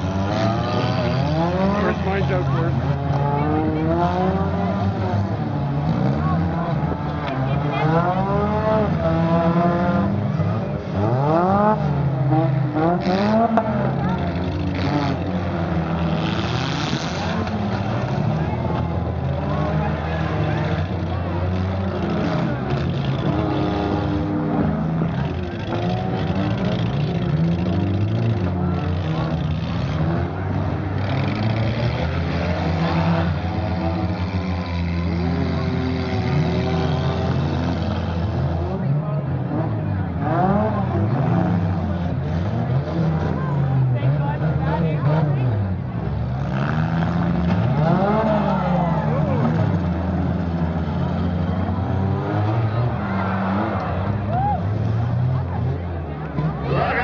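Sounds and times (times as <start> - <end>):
car engines revving: 0.0 - 57.0
rumble of idling cars: 17.2 - 53.0.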